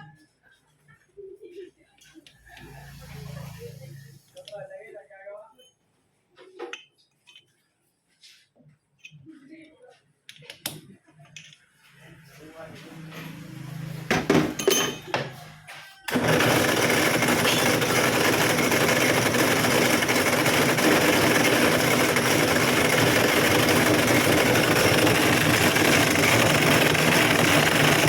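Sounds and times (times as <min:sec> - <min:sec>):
machine running loudly: 0:16.1 - 0:28.0.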